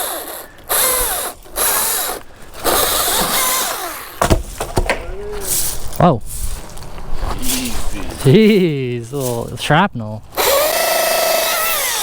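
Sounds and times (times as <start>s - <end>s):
chainsaw revving: 0.0s - 4.3s, 10.3s - 12.0s
sharp knocks: 4.2s - 5.1s.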